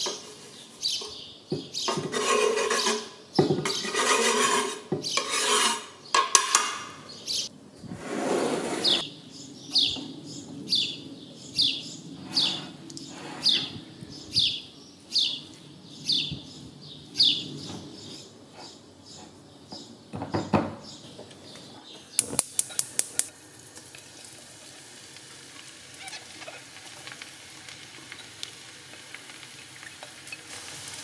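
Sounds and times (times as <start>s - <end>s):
knife scraping cutting board: 1.9s - 6.8s, 8.0s - 9.0s, 12.3s - 13.7s
spatula scraping ceramic bowl: 1.9s - 6.8s, 8.0s - 9.0s.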